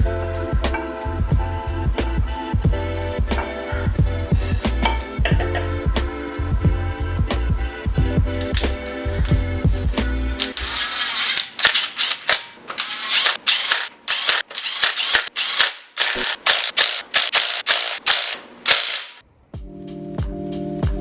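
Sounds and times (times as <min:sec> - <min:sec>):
ratchet wrench clicking: 0:10.5 - 0:19.2.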